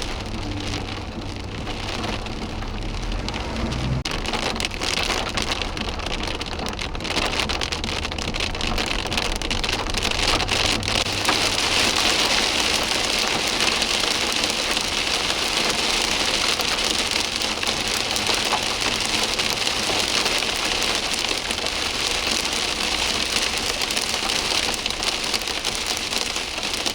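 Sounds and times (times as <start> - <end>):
low rumble: 0.0 - 13.6
heavy rain pouring: 0.0 - 26.9.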